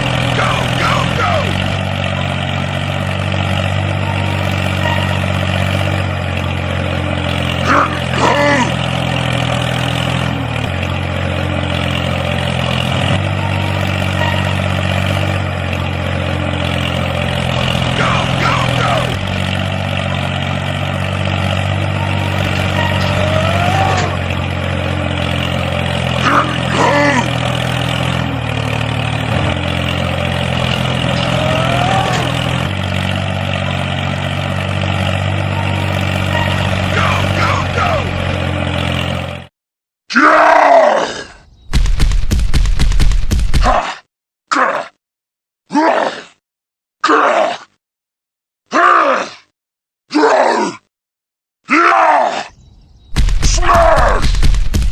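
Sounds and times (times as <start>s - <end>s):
model tractor engine drone: 0.0s - 39.5s.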